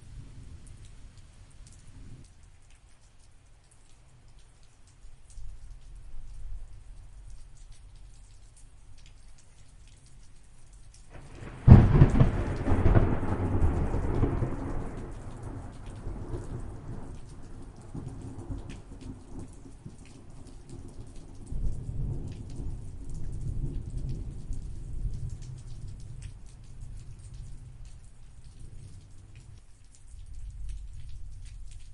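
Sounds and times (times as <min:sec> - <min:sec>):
raindrops ticking: 0:00.0 - 0:31.9
thunder rolling: 0:11.1 - 0:17.1.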